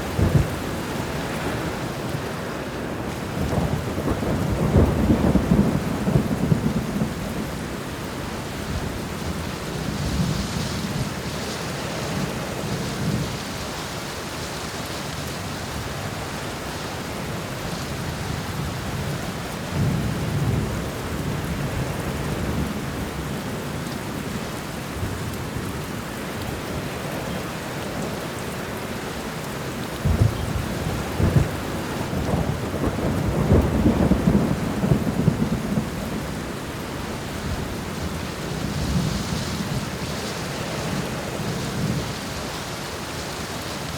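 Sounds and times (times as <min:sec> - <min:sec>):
thunder rumbling and cracking: 0:00.0 - 0:02.4, 0:03.0 - 0:11.5, 0:29.9 - 0:42.2
steady rain falling: 0:00.0 - 0:43.9.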